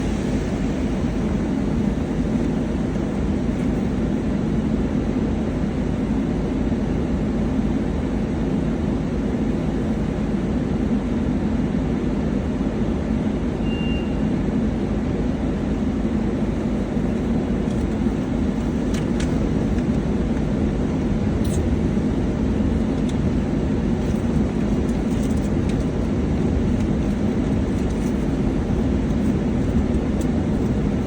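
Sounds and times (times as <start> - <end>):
car wash machinery rumbling: 0.0 - 31.0
brief high tone: 13.6 - 14.3.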